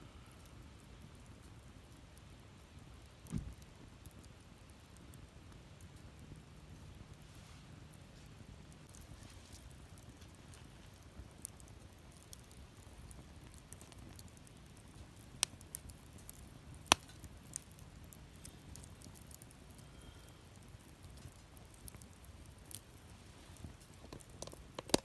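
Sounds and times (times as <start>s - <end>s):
wood fire crackling: 0.1s - 25.0s
sharp snaps of wood: 16.9s - 17.2s.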